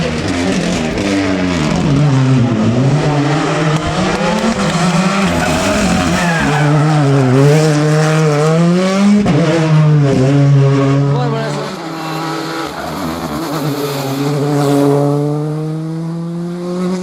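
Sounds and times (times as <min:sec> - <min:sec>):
rally car engine under load: 0:00.0 - 0:17.0.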